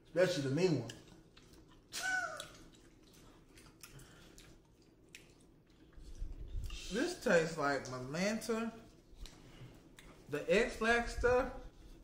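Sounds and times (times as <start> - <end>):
mouth clicks chewing candy: 0.7 - 7.0.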